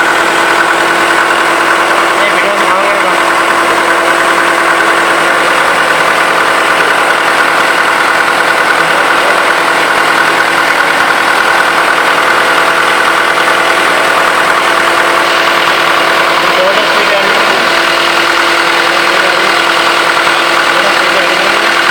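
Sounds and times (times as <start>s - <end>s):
diesel engine clattering: 0.0s - 21.9s.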